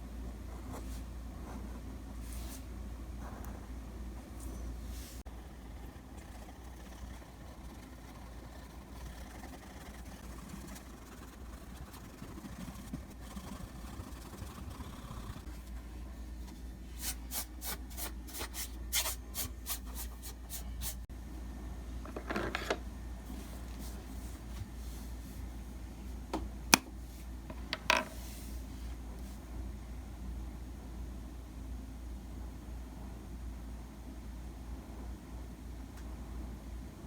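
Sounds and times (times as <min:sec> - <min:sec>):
steady low hum: 0:00.0 - 0:37.0
drawing strokes scratching: 0:04.9 - 0:15.6.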